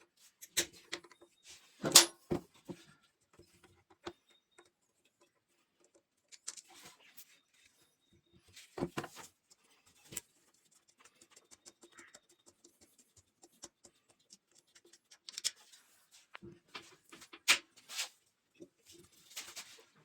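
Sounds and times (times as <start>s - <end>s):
small objects clicking and scraping: 5.8s - 7.3s, 9.0s - 18.1s.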